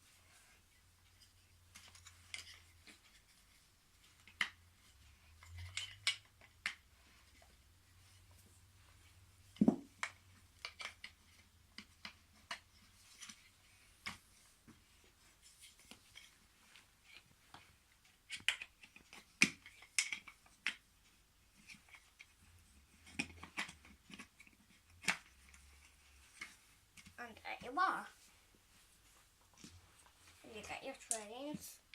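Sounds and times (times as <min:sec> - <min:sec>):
wooden track pieces clicking: 0:05.4 - 0:07.4, 0:09.6 - 0:13.4, 0:18.0 - 0:20.8
wooden thud: 0:09.6 - 0:09.9.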